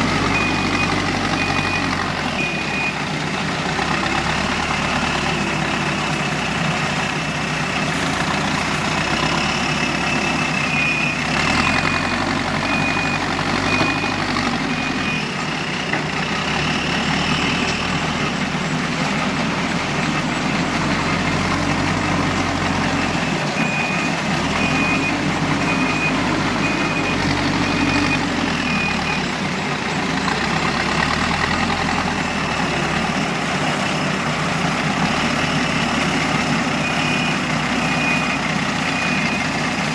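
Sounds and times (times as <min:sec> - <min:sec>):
reversing alarm beeping: 0:00.0 - 0:03.1, 0:04.0 - 0:18.8, 0:21.3 - 0:33.2, 0:35.1 - 0:39.8
heavy diesel engines running: 0:00.0 - 0:39.9.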